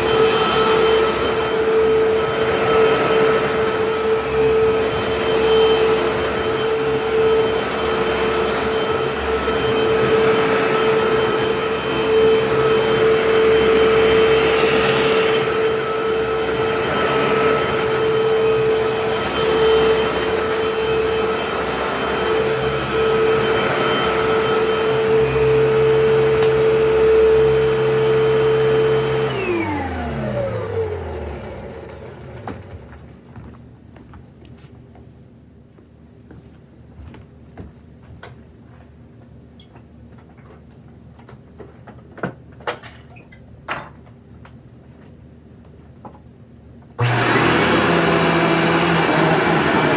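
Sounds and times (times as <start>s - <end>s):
vacuum motor winding down: 0.0s - 33.2s, 47.0s - 49.9s
vacuum cleaner running on a rug: 0.0s - 33.6s, 47.0s - 49.9s.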